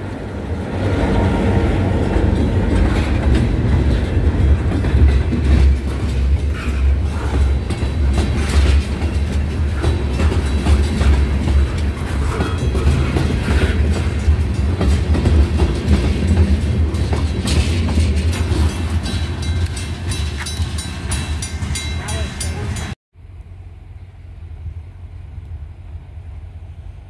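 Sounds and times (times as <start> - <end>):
freight train rolling past: 0.0 - 27.0
crossing bell ringing: 1.8 - 23.0.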